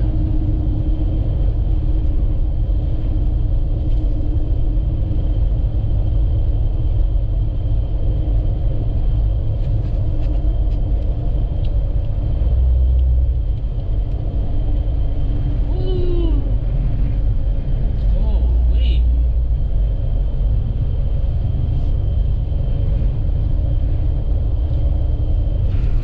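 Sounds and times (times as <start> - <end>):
vehicle road and engine noise: 0.0 - 26.0.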